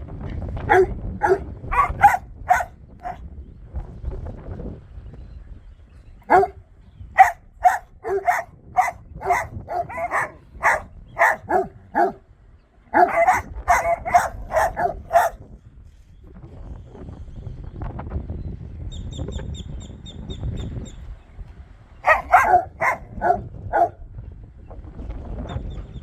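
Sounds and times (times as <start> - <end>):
dogs barking: 0.7 - 3.2, 6.2 - 6.6, 7.2 - 12.2, 12.9 - 15.4, 22.0 - 24.0.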